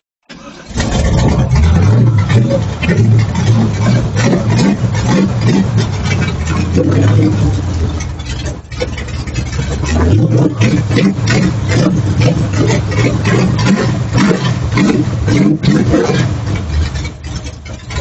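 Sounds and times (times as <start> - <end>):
race car engine running rough: 0.6 - 18.0.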